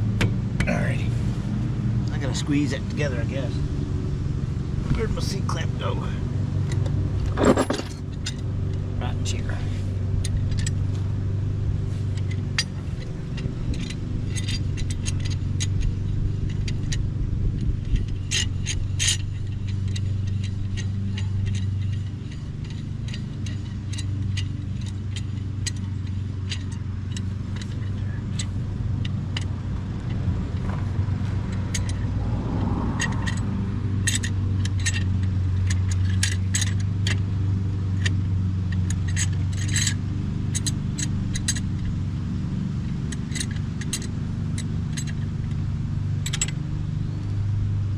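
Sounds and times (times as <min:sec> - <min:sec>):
steady low hum: 0:00.0 - 0:47.9
hand tools clinking on metal: 0:06.7 - 0:11.0, 0:17.9 - 0:41.9, 0:46.2 - 0:47.2.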